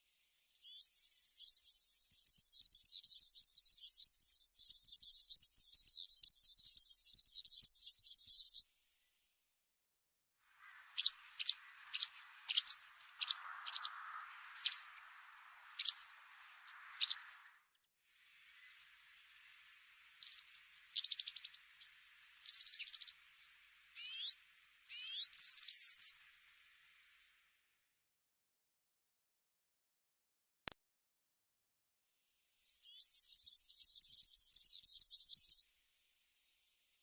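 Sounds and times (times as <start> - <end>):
small bird chirping: 0.0 - 8.7, 10.0 - 17.8, 18.5 - 27.5, 32.6 - 35.7
bird trilled calls: 0.6 - 8.6, 10.6 - 17.5, 18.6 - 18.9, 20.1 - 23.4, 24.0 - 27.0, 32.6 - 35.6.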